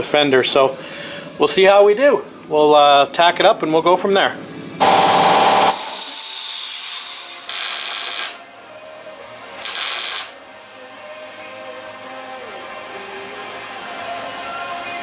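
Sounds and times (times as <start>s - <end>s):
welder crackling and hissing: 4.8s - 8.5s, 9.6s - 10.4s.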